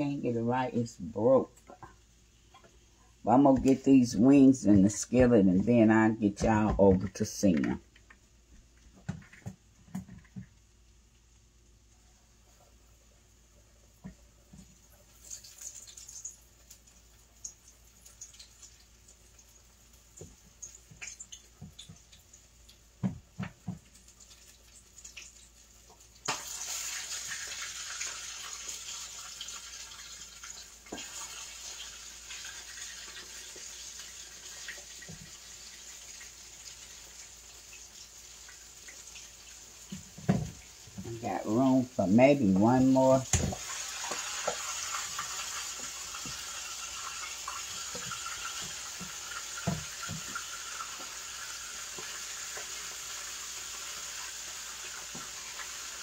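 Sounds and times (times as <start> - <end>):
chicken frying in oil: 0.0 - 56.0.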